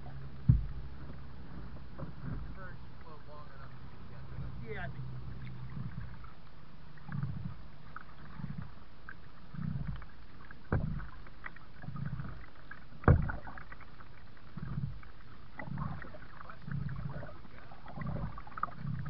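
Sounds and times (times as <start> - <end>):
paddle strokes in water: 0.0 - 19.0
sharp knocks: 0.5 - 0.8, 10.7 - 11.1, 13.0 - 13.5
water splashing and dripping: 4.7 - 19.0.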